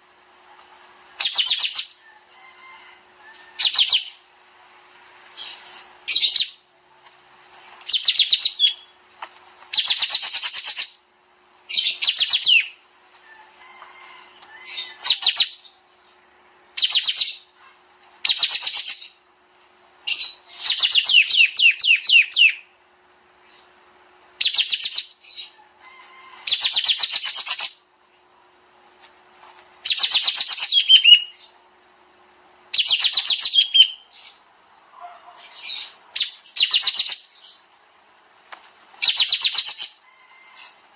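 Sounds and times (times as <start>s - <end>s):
songbird trilling: 1.2s - 2.0s, 3.5s - 4.2s, 5.4s - 6.6s, 7.9s - 9.0s, 9.7s - 11.0s, 11.6s - 12.8s, 14.5s - 15.9s, 16.8s - 17.5s, 18.2s - 19.2s, 20.1s - 22.7s, 24.4s - 27.9s, 28.7s - 31.6s, 32.7s - 37.6s, 39.0s - 40.8s.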